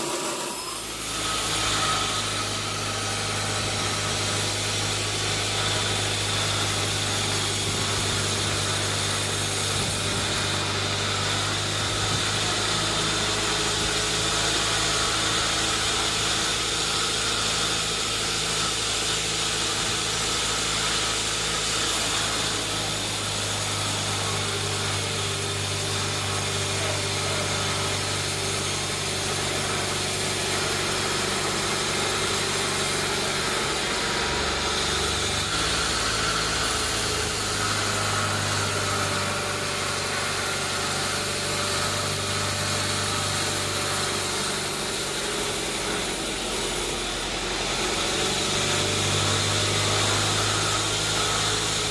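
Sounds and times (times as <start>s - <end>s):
sawmill machinery drone: 0.0s - 51.9s.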